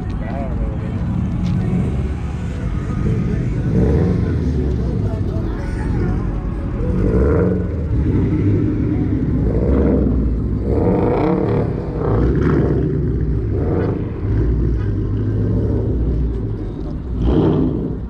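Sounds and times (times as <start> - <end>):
people talking: 0.0 - 12.9
car engines rumbling: 0.0 - 18.0.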